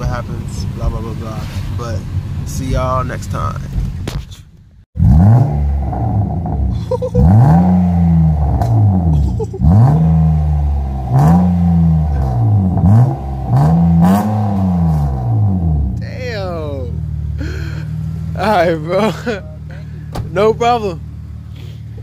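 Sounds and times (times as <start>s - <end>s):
exhaust pops and cracks: 2.6s - 4.6s
car engine revving: 5.0s - 22.0s.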